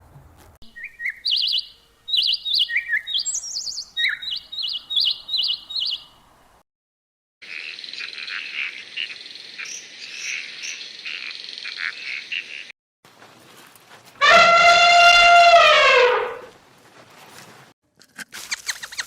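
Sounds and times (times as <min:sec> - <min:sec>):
birds chirping: 0:00.7 - 0:06.4
animal long loud call: 0:14.2 - 0:16.5.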